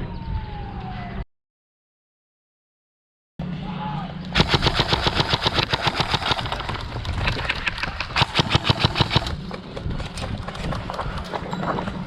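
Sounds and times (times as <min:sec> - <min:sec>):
low hum: 0:03.4 - 0:12.0
airsoft rifle firing rapidly: 0:04.4 - 0:07.0, 0:08.1 - 0:09.4.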